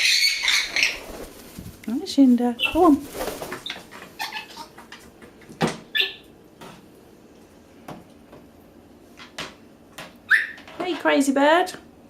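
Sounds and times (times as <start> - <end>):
parrot squawk: 0.0 - 1.0, 3.6 - 4.7, 5.9 - 6.2, 10.3 - 10.6.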